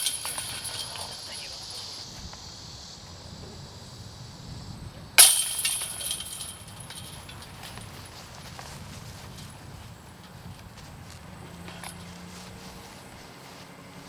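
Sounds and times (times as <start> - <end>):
chain jingle: 0.0 - 2.1, 5.2 - 8.5, 11.7 - 12.1
disc hitting metal chains: 0.0 - 2.1, 5.2 - 8.3.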